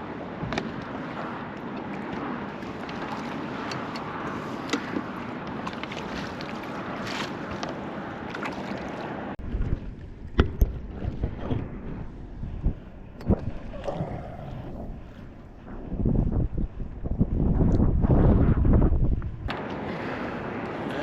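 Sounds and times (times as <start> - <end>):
water noise: 0.0 - 21.0
wind gusting on microphone: 9.0 - 21.0
low rumbling buffets: 9.4 - 21.0.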